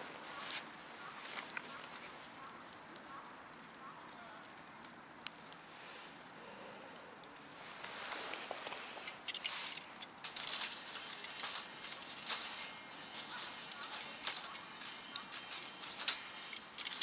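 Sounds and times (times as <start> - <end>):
wood fire crackling: 0.0 - 17.0
sharp pops of fire: 1.0 - 17.0
hissing rush of fire: 1.7 - 17.0.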